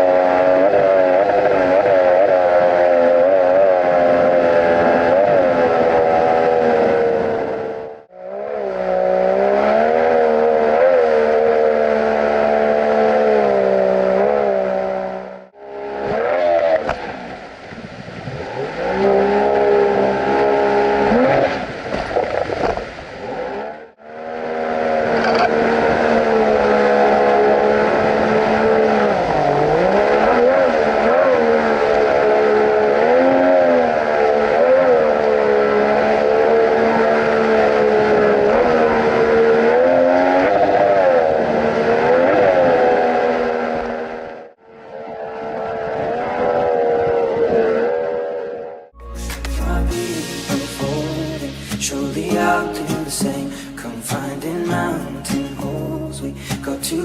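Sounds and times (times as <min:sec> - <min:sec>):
jet boat motor running: 0:23.8 - 0:40.5.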